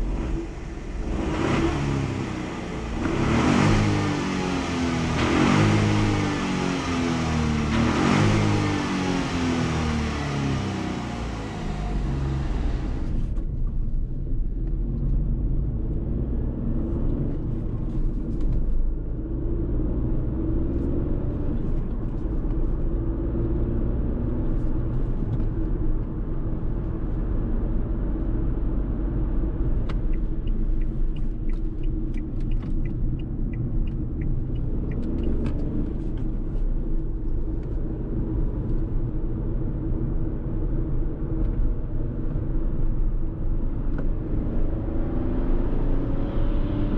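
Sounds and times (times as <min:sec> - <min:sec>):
car engine pulling: 0:00.0 - 0:14.0
road and tyre rumble: 0:00.0 - 0:46.9
faint light ticks: 0:29.8 - 0:36.3.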